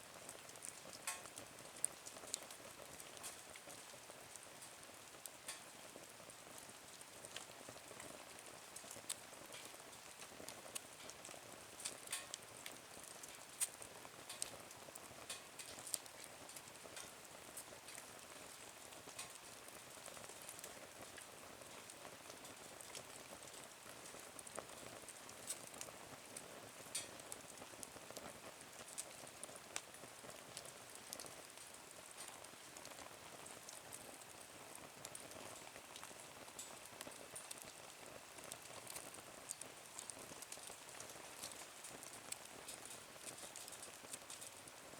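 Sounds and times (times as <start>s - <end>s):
wood fire crackling: 0.1s - 44.9s.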